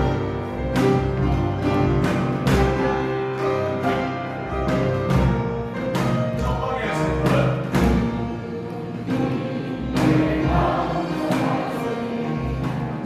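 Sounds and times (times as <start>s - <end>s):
struck percussion accents: 0.0s - 11.8s
orchestral accompaniment: 0.0s - 13.0s
choir singing worship song: 6.4s - 13.0s.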